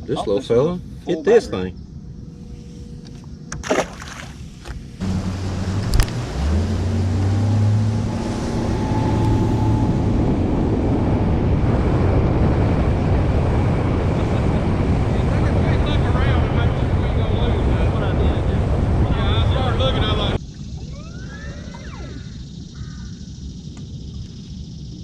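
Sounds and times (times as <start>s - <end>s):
outboard motor running: 2.5s - 9.9s
rush of wind and water: 3.6s - 20.7s.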